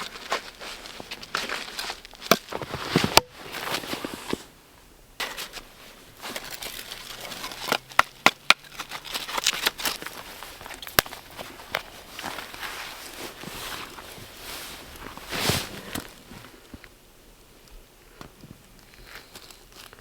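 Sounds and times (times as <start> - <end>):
wood snapping and crackling: 5.2 - 12.7.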